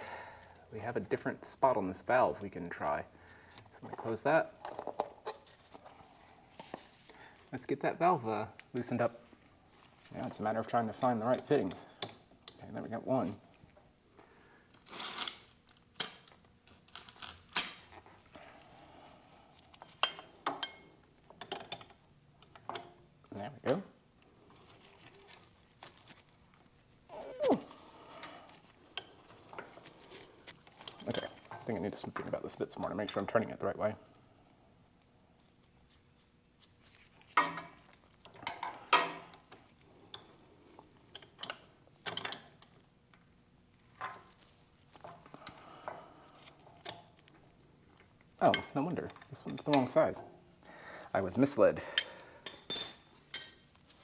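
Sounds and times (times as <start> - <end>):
metal fittings clinking: 52.0 - 53.7.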